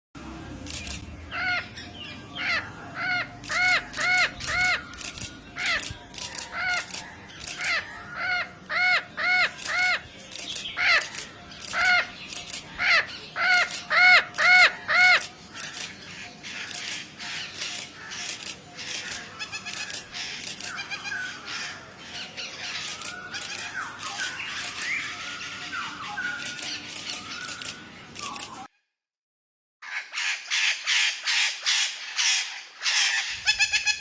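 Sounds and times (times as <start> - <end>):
bird cawing: 1.3 - 10.0, 10.8 - 28.4.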